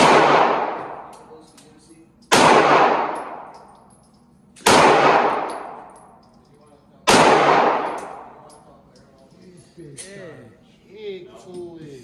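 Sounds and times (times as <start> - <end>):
echoing gunshots: 0.0 - 1.1, 2.3 - 3.5, 4.6 - 6.0, 7.1 - 8.4.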